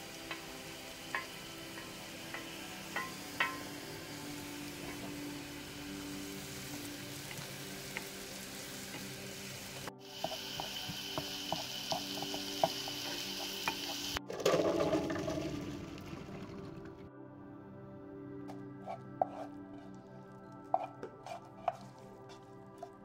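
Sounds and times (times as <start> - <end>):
vegetables sizzling in a frying pan: 0.0 - 14.2
spatula scraping a pan: 18.5 - 20.0, 20.7 - 23.0.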